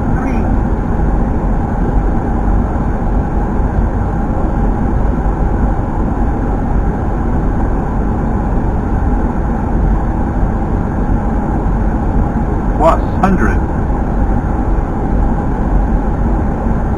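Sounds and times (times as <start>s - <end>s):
deep engine hum: 12.3s - 14.1s.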